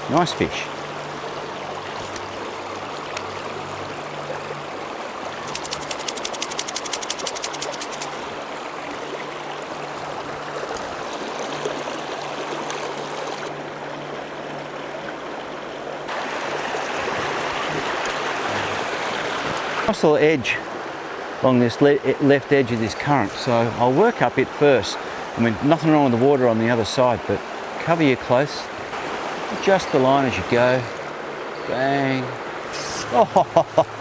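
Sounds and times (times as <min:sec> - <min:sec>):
stream running over rocks: 0:00.0 - 0:34.0
rapid clicks: 0:05.5 - 0:08.3.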